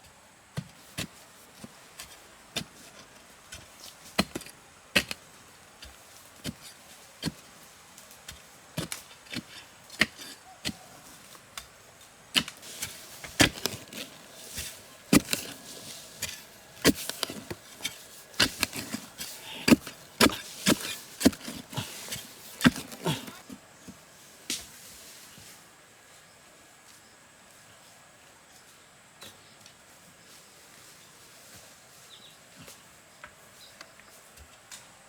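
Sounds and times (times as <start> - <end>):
blade chopping wood: 12.4 - 23.4.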